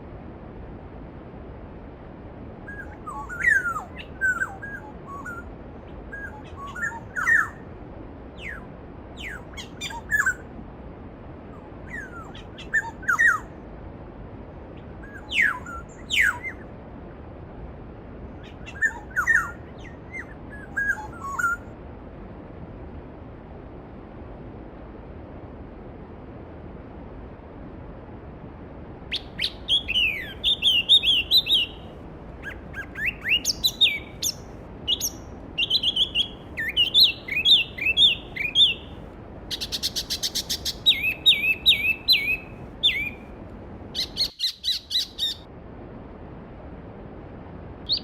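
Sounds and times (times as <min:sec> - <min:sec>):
bird calls and song: 0:02.7 - 0:07.6, 0:08.4 - 0:10.5, 0:11.8 - 0:13.5, 0:14.8 - 0:16.7, 0:18.4 - 0:21.7, 0:29.1 - 0:43.4, 0:44.0 - 0:45.5.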